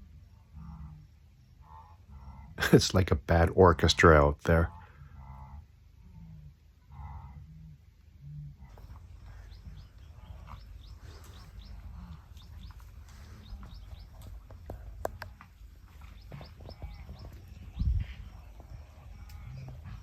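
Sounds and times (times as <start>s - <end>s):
high chirping animal calls: 4.0s - 20.0s.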